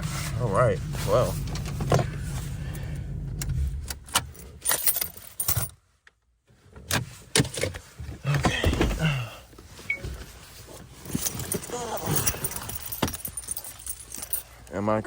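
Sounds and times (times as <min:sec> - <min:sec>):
low rumble: 0:00.0 - 0:04.8
car keys jangling: 0:01.0 - 0:05.8, 0:10.7 - 0:14.8.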